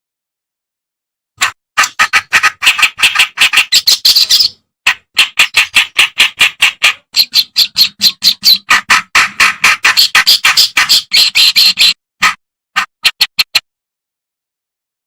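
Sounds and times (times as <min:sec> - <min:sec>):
warbler singing: 0:03.1 - 0:04.6, 0:07.2 - 0:08.7, 0:10.0 - 0:12.0.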